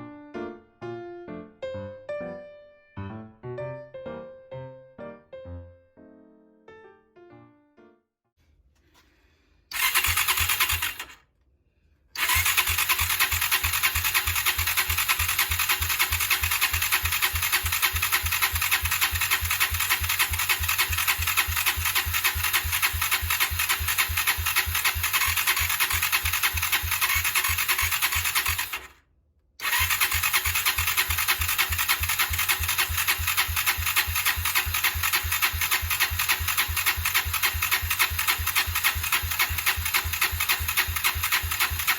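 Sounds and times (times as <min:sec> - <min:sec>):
electric starter cranking engine: 0:09.7 - 0:11.2, 0:12.2 - 0:29.0, 0:29.6 - 0:41.9.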